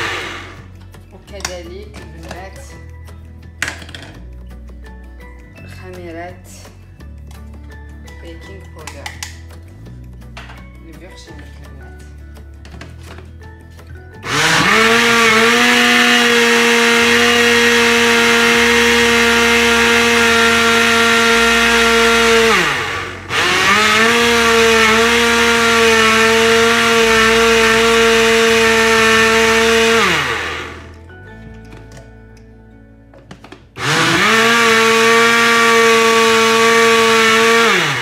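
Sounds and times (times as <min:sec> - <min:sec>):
electric blender running: 0:00.0 - 0:00.7, 0:14.2 - 0:31.0, 0:33.8 - 0:38.0.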